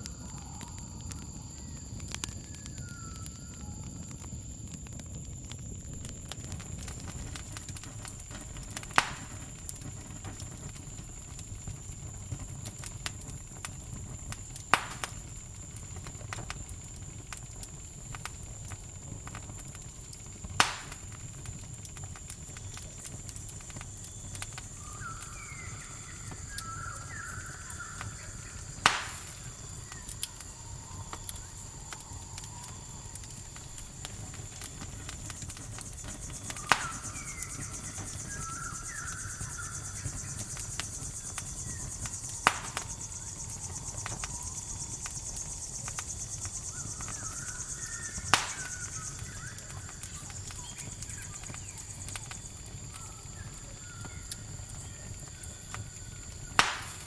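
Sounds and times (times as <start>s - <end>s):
campfire crackling and popping: 0.0s - 57.0s
crickets trilling: 0.0s - 57.0s
short chirping calls: 24.4s - 31.1s, 36.0s - 52.1s.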